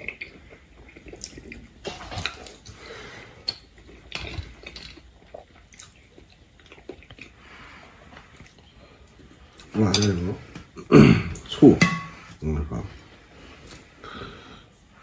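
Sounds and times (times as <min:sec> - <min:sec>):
wet chewing and smacking: 0:00.0 - 0:10.8.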